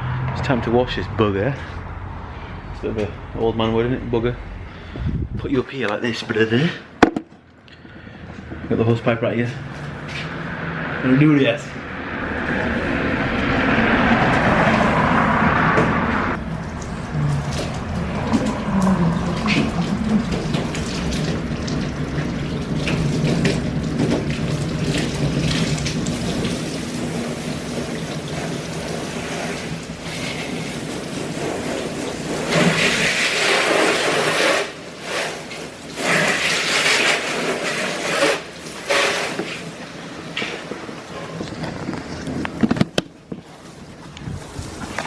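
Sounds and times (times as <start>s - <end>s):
garden hose spraying water: 16.4s - 41.2s.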